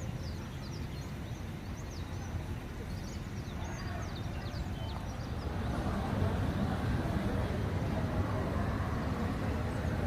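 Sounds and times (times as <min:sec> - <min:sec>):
small birds chirping: 0:00.0 - 0:06.9
low outdoor rumble: 0:00.0 - 0:10.0.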